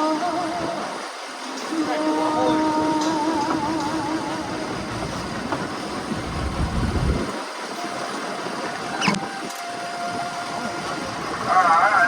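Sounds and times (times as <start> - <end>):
boat engine: 0.0 - 12.0
wind noise: 0.0 - 12.0
low rumble: 4.0 - 7.3.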